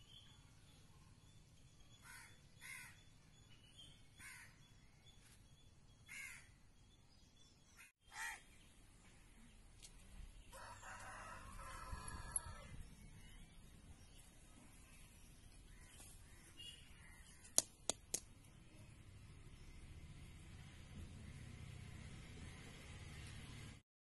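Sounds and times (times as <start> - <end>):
faint bird caws: 2.0 - 3.0, 4.2 - 4.6, 6.1 - 6.6, 7.8 - 8.5.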